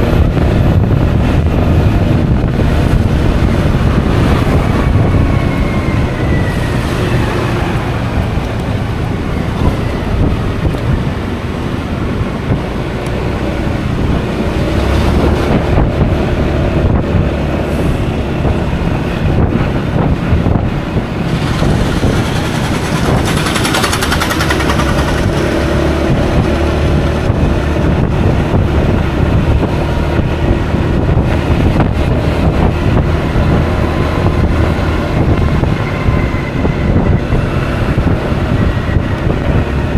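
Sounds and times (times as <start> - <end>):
road noise: 0.0 - 39.9
wind rushing over microphone: 0.0 - 39.9
scooter engine: 19.9 - 27.4.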